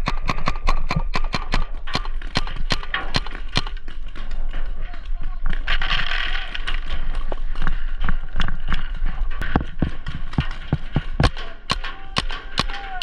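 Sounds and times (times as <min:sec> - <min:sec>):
paintball markers firing: 0:00.0 - 0:03.9.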